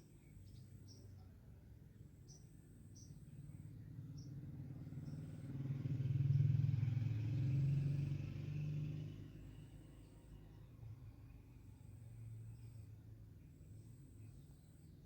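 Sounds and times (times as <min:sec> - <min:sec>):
motor vehicle passing by: 0:03.6 - 0:13.4.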